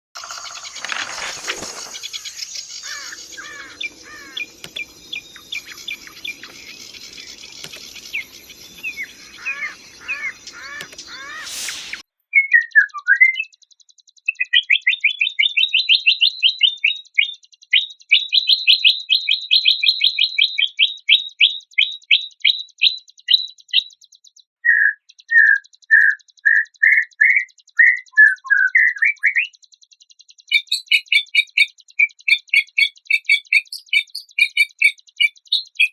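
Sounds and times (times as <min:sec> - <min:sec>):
songbird chirping: 0:00.2 - 0:17.2, 0:17.8 - 0:35.9
faint hum: 0:02.8 - 0:12.0.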